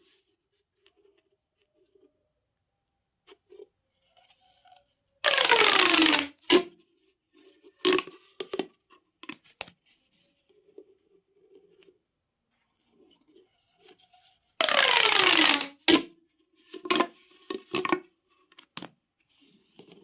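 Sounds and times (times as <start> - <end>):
plastic pop tube rasping: 5.2 - 6.7, 7.8 - 9.7, 14.6 - 16.1, 16.7 - 18.0.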